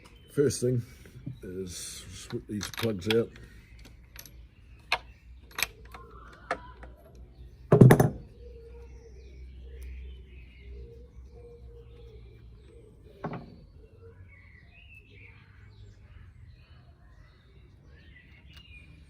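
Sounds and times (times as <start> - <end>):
tools clicking on spark plugs: 2.2 - 6.1.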